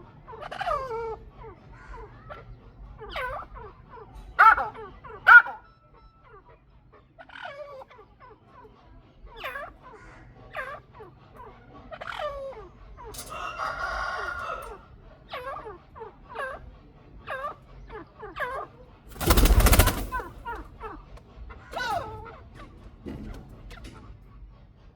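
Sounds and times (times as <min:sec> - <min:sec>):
partridges chuck calls: 0:03.1 - 0:05.6, 0:09.3 - 0:24.0.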